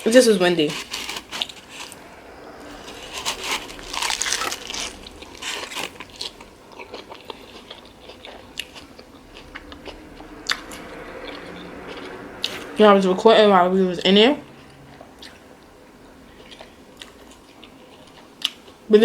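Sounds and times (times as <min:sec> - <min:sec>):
person chewing crunchy food: 0:00.6 - 0:12.6.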